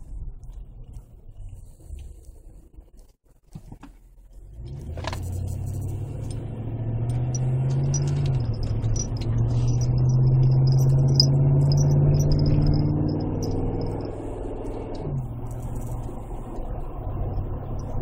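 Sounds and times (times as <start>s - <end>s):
deep exhaust drone: 4.3s - 18.0s.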